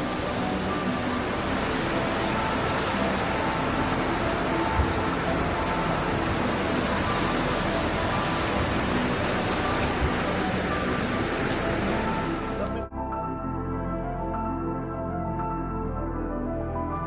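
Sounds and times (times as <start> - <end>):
waterfall rushing: 0.0 - 12.8
faint background music: 0.0 - 17.0.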